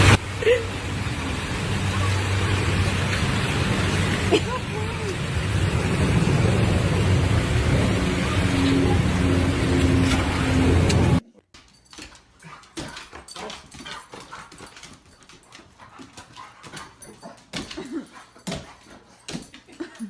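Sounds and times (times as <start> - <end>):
loud rushing noise: 5.2 - 11.2.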